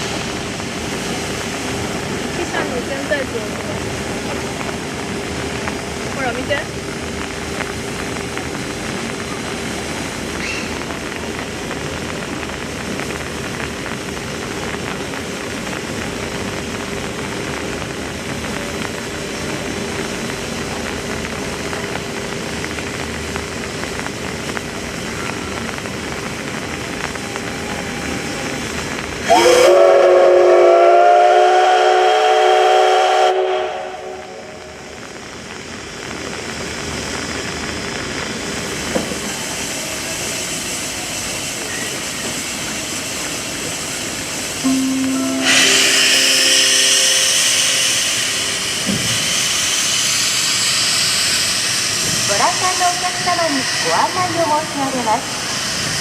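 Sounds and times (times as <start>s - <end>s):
steam locomotive hissing: 26.7s - 56.0s
steam whistle blast: 29.3s - 34.6s, 44.6s - 49.3s.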